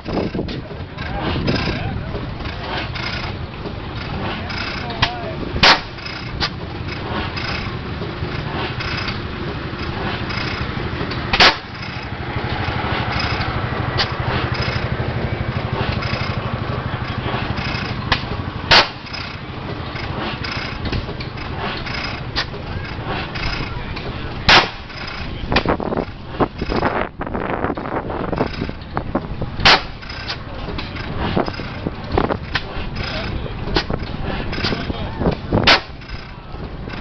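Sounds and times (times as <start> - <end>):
machine clatter and murmur: 0.0 - 37.0
gas engine firing bangs: 5.6 - 6.0, 11.3 - 11.9, 18.1 - 19.3, 24.4 - 25.7.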